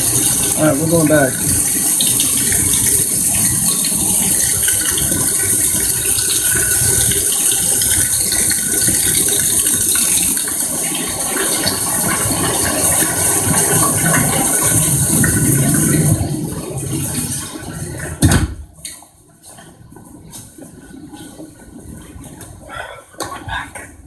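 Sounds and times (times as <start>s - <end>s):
heavy rain falling: 0.0s - 18.2s.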